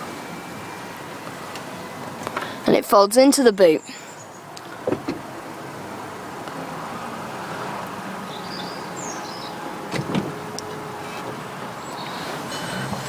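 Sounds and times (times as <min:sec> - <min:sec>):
car roof motor hum: 0:04.6 - 0:06.2, 0:07.6 - 0:13.0
roof mechanism clunks: 0:04.8 - 0:05.3, 0:09.8 - 0:11.5.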